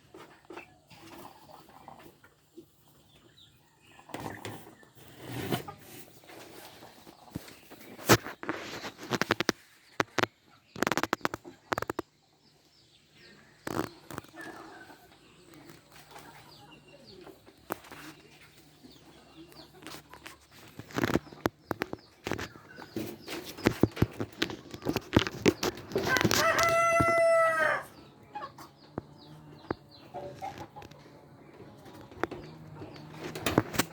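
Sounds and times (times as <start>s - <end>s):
clicks and knocks from flock: 5.5s - 12.1s, 13.6s - 14.8s, 17.2s - 27.7s, 28.5s - 33.9s
rooster crowing: 26.1s - 28.0s.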